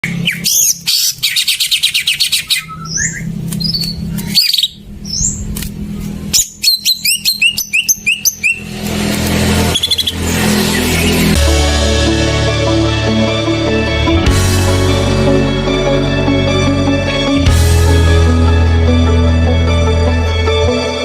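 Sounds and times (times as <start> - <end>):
bird chirps and whistles: 0.0 - 5.5, 6.3 - 8.7, 9.7 - 11.3
steady low hum: 0.0 - 21.0.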